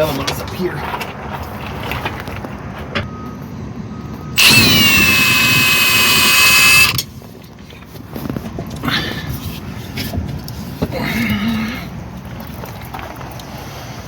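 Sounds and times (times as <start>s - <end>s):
impact wrench whining: 4.4s - 7.1s.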